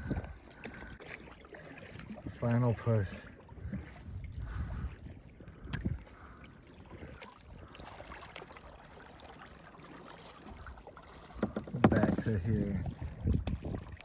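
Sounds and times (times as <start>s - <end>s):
paddle strokes in water: 0.0s - 14.0s.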